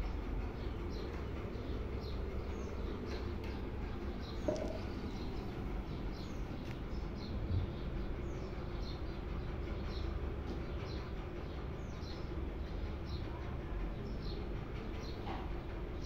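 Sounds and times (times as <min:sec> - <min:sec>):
low background hum: 0:00.0 - 0:16.0
small birds chirping: 0:00.1 - 0:16.0.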